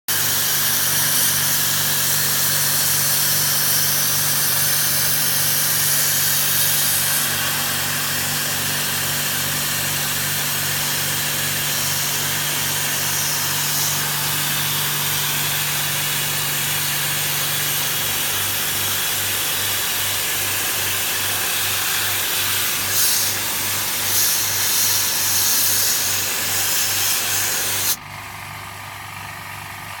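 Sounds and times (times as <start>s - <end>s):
pressure washer spray hiss: 0.1s - 28.0s
pump motor hum: 0.1s - 30.0s.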